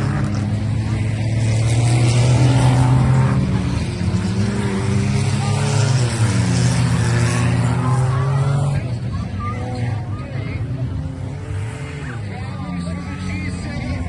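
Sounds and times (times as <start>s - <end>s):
race car engines revving: 0.0s - 14.0s.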